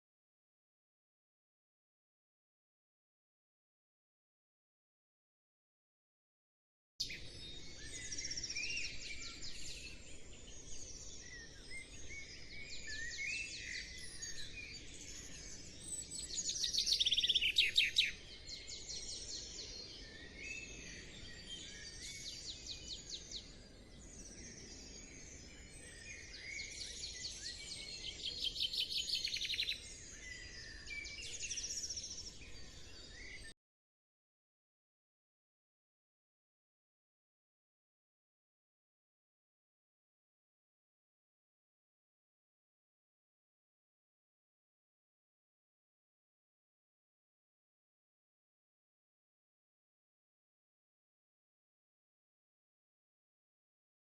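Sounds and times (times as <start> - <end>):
songbirds chirping and trilling: 7.0 - 33.6.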